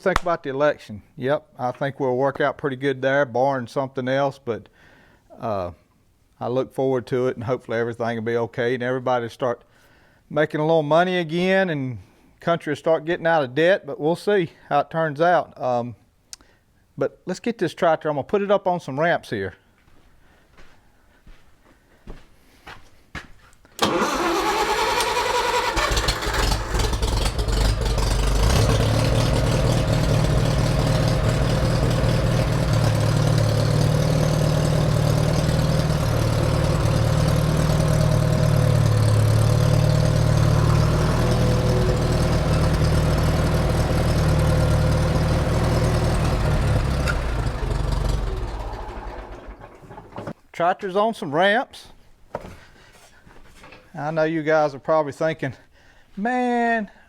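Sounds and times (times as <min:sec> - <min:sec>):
tractor engine starting and running: 0:23.8 - 0:50.4.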